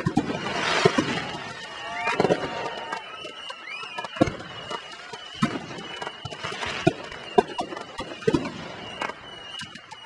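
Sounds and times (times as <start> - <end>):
firework bangs: 0.0 - 10.0.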